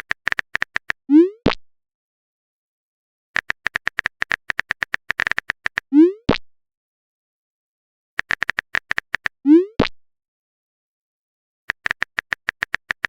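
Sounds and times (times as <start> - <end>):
electronic typing ticks: 0.0 - 1.0, 3.4 - 5.9, 8.2 - 9.8, 11.7 - 13.0.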